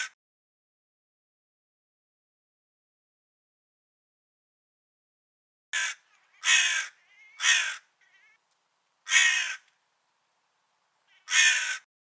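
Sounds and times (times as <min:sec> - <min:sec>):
crow cawing: 0:05.8 - 0:08.4, 0:09.0 - 0:09.7, 0:11.1 - 0:11.9
faint soft bird calls: 0:05.8 - 0:11.9.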